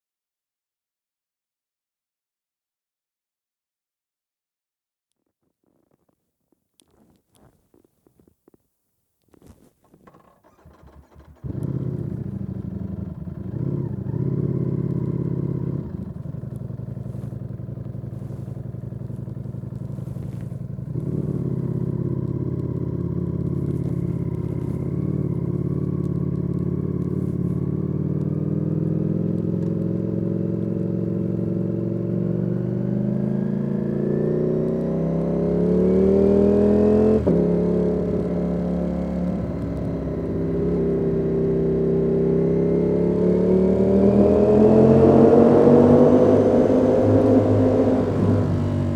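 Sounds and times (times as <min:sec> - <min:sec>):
motorcycle engine revving: 0:10.0 - 0:48.9.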